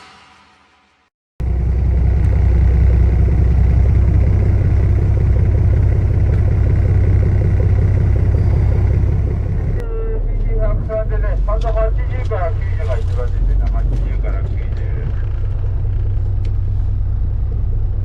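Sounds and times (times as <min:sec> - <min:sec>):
intro music: 0:01.4 - 0:09.8
boat engine low rumble: 0:01.4 - 0:18.0.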